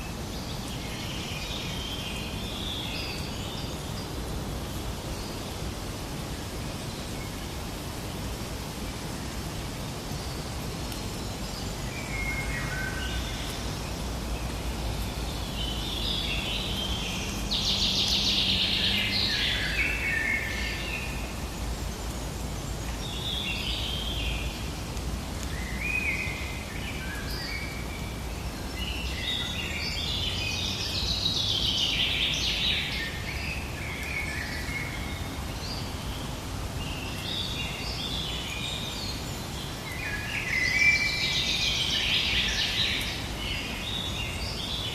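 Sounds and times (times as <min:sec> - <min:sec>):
birds singing and chirping: 0:10.1 - 0:24.7.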